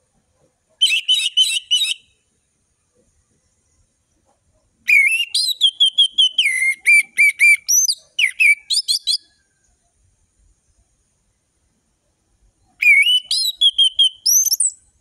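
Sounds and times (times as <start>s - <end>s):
thrush singing whistled notes: 0.8s - 2.2s, 4.9s - 9.4s, 12.6s - 15.0s.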